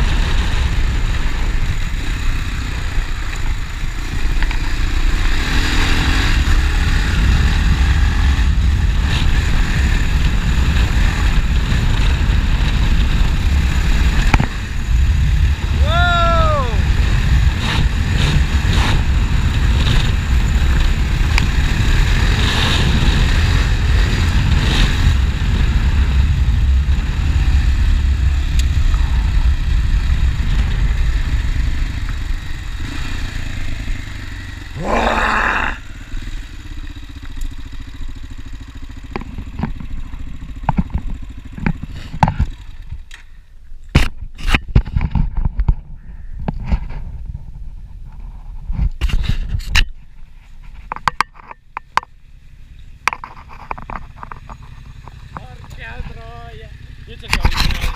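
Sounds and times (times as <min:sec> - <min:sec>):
motorcycle engine rumbling: 0:00.0 - 0:57.9
sharp clicks and knocks: 0:39.1 - 0:43.3, 0:50.7 - 0:52.1, 0:53.0 - 0:55.8.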